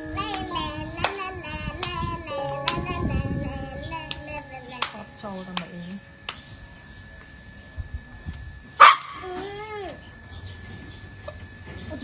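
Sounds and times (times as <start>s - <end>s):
puppy barking: 8.8s - 9.4s.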